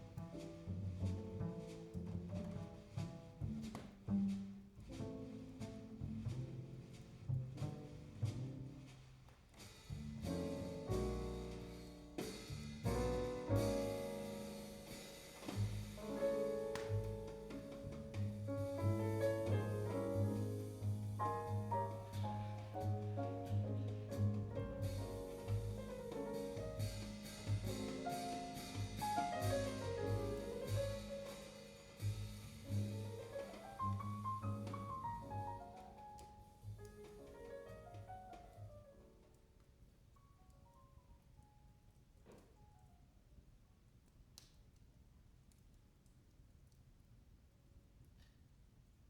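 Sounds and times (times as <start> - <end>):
light drums: 0.0 - 38.7
double bass: 0.0 - 38.8
jazz trio playing: 0.0 - 39.3
drum and cymbal strokes: 9.6 - 18.6, 24.8 - 34.9
piano chords: 10.2 - 39.3
deep bass notes: 16.9 - 31.3.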